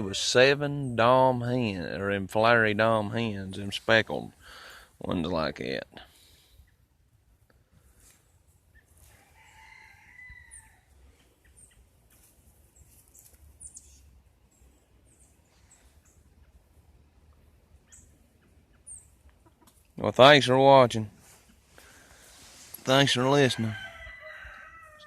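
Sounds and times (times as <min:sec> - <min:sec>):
faint rooster crow: 0:09.0 - 0:11.3, 0:23.4 - 0:25.0.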